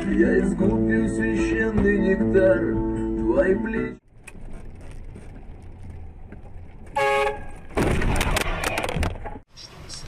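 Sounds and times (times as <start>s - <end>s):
low vehicle rumble: 0.0s - 9.5s
crunching clatter with sharp cracks: 4.0s - 9.5s
vehicle horn blast: 7.0s - 7.5s.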